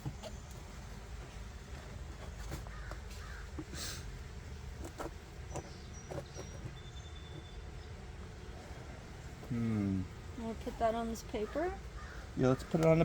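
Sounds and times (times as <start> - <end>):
crows cawing: 2.6 - 4.0, 11.3 - 13.0.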